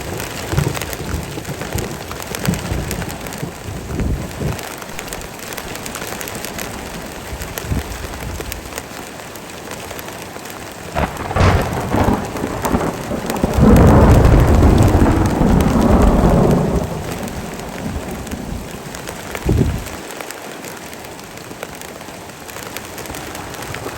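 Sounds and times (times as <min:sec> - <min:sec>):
heavy rain falling: 0:00.0 - 0:23.9
thunder cracks and rumble: 0:10.9 - 0:20.0.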